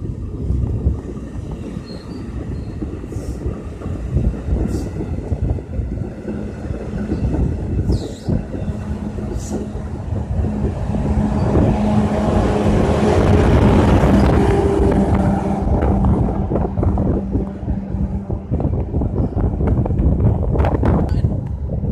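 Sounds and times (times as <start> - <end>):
train rumbling past: 0.0 - 21.9.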